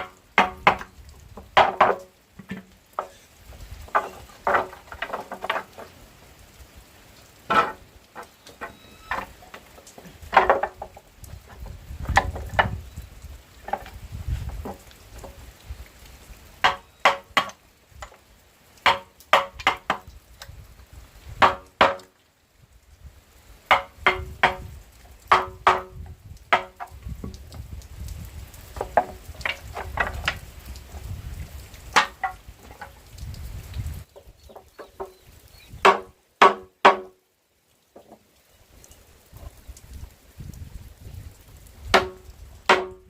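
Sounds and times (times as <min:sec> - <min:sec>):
hand tool striking wood: 0:00.0 - 0:00.9, 0:01.5 - 0:03.2, 0:03.9 - 0:05.9, 0:07.5 - 0:09.6, 0:10.3 - 0:12.8, 0:16.6 - 0:18.2, 0:18.8 - 0:20.0, 0:21.4 - 0:22.1, 0:23.7 - 0:24.7, 0:25.3 - 0:27.4, 0:32.0 - 0:32.9, 0:35.8 - 0:37.1, 0:41.9 - 0:43.0.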